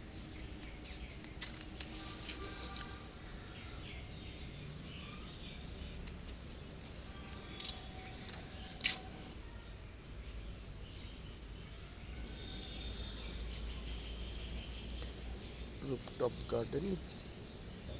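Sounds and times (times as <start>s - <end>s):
high insect chirring: 0.0s - 17.9s.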